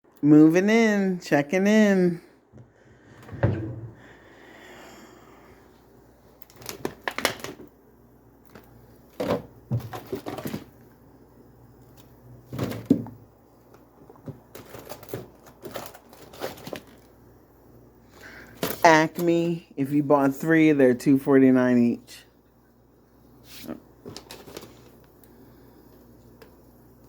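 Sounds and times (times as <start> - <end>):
groceries clicking and knocking: 6.3 - 11.0, 11.8 - 17.3, 18.2 - 19.5, 24.0 - 25.3.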